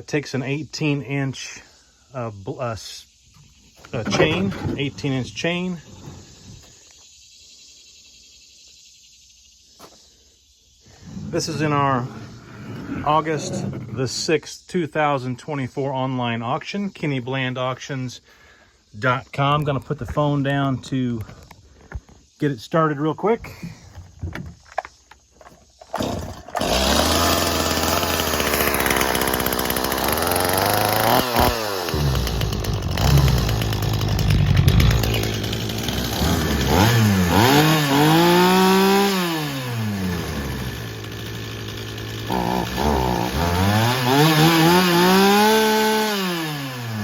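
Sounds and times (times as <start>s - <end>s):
chainsaw starting and revving: 3.9s - 6.7s, 11.0s - 14.0s, 25.9s - 47.0s.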